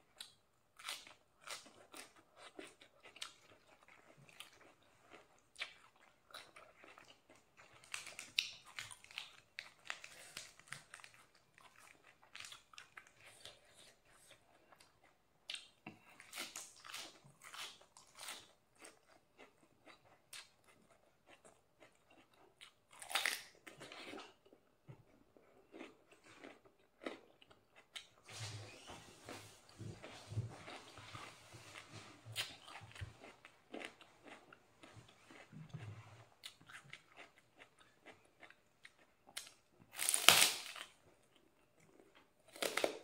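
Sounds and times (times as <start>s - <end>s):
quiet chewing: 0.1s - 39.7s
crisp crunching of vegetables: 39.9s - 41.0s.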